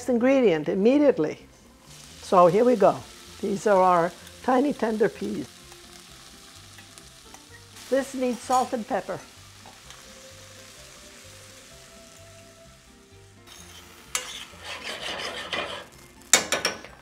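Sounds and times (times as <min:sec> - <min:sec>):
peas sizzling in oil: 0:01.4 - 0:17.0
metal spoon scraping a pan: 0:13.5 - 0:16.8.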